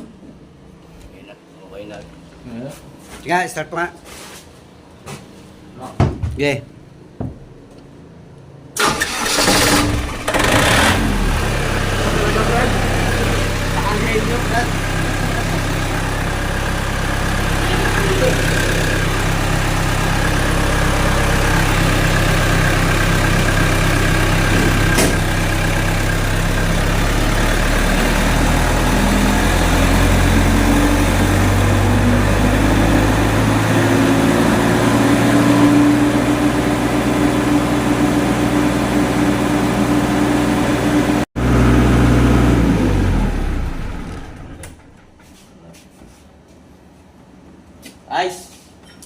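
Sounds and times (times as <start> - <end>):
generator engine running: 8.8 - 45.4.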